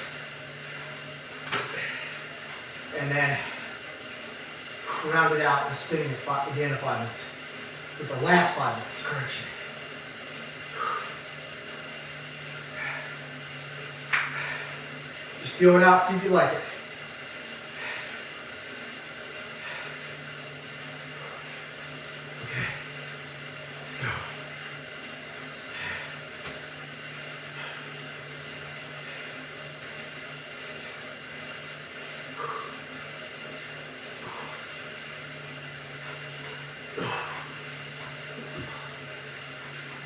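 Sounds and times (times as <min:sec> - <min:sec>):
exercise bike whirring: 0:00.0 - 0:40.0.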